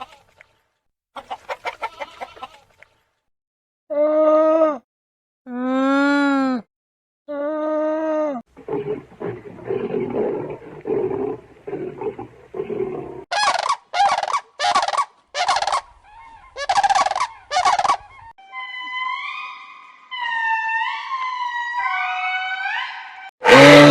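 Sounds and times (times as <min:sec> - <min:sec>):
rough rapid animal grunting: 0:08.5 - 0:13.3
loud harsh animal calls: 0:08.6 - 0:19.4, 0:22.5 - 0:23.9
falling animal call: 0:13.3 - 0:23.9.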